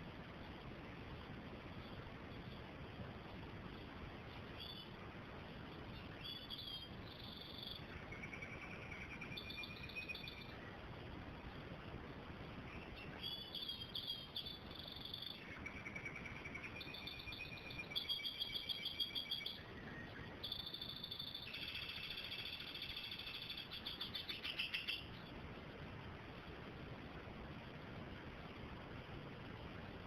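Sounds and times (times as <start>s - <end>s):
bird singing high trills: 4.5s - 5.0s, 5.9s - 10.6s, 12.8s - 25.2s.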